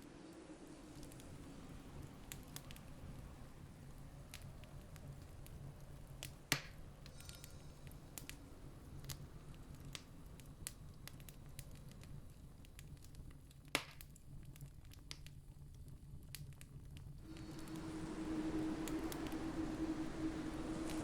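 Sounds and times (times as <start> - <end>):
campfire wood crackling: 0.0 - 21.0
low steady rumble: 16.8 - 21.0.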